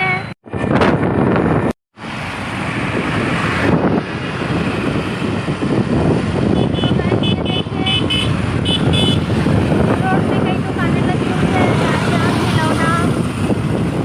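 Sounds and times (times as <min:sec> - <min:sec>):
road and traffic noise: 0:00.0 - 0:14.0
wind buffeting microphone: 0:00.0 - 0:14.0
horn toots: 0:06.5 - 0:09.4.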